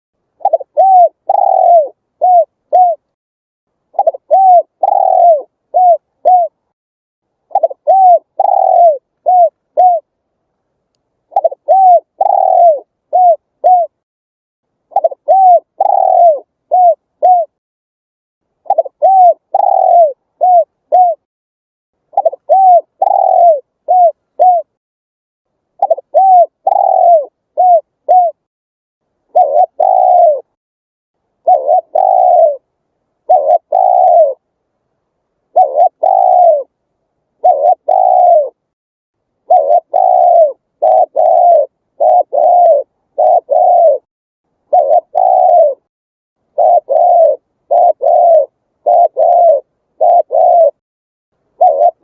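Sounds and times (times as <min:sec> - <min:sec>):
dove cooing: 0:00.4 - 0:03.1, 0:03.9 - 0:06.6, 0:07.5 - 0:10.1, 0:11.3 - 0:14.0, 0:14.9 - 0:17.6, 0:18.6 - 0:21.3, 0:22.1 - 0:24.7, 0:25.8 - 0:28.5, 0:29.3 - 0:30.6, 0:31.4 - 0:34.4, 0:35.5 - 0:36.8, 0:37.4 - 0:38.6, 0:39.4 - 0:44.1, 0:44.7 - 0:45.9, 0:46.5 - 0:50.8, 0:51.5 - 0:52.0.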